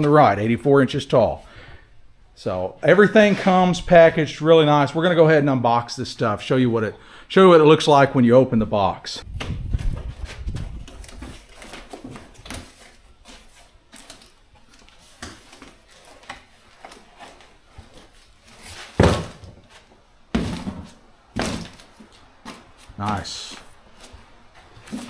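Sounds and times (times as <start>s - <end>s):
cardboard boxes rustling: 9.4s - 25.0s
loud thumps: 18.9s - 19.7s.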